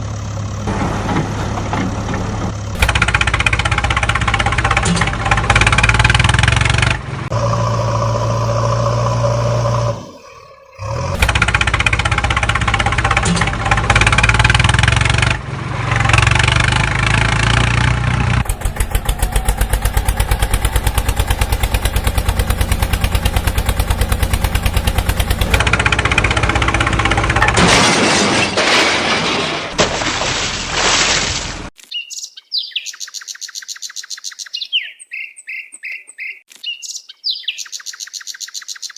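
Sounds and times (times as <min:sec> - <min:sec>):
vehicle engines: 0:00.0 - 0:31.7
engine chugging rapidly: 0:02.4 - 0:09.9, 0:10.8 - 0:27.6
birds chirping: 0:08.9 - 0:11.2, 0:31.8 - 0:38.9.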